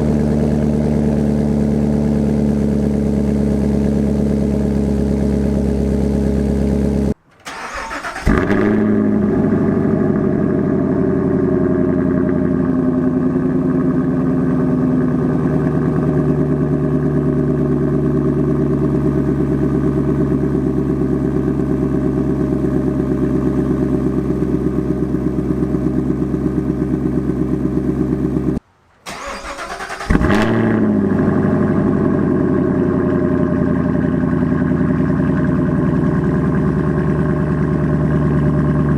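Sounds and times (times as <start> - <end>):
car engine idling: 0.0 - 38.9
engine starting and revving: 5.8 - 12.6, 29.0 - 34.2.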